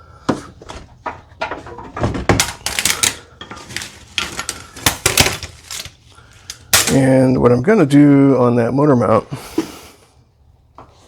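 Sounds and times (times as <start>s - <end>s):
metal tools clanking: 1.4s - 7.2s.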